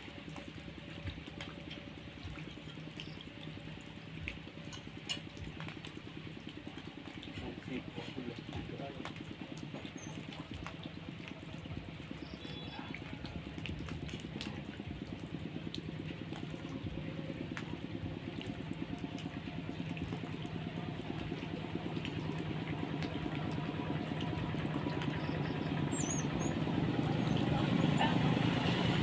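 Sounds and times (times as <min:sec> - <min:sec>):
small engine running: 0:14.1 - 0:29.0.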